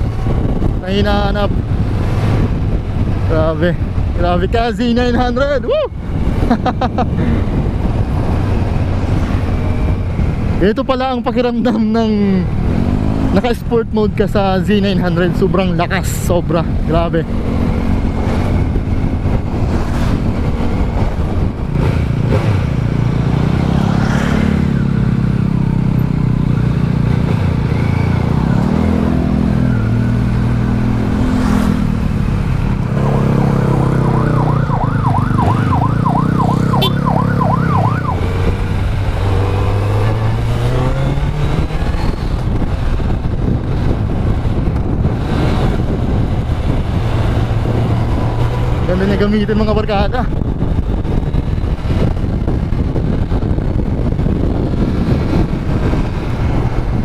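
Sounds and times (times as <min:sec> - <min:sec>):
motorcycle engine revving: 0:12.2 - 0:57.0
yelping siren: 0:33.2 - 0:38.3.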